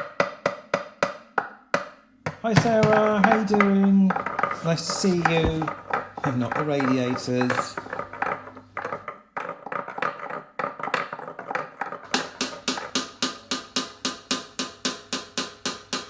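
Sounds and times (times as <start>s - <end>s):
pen tapping on plastic: 2.3s - 13.0s.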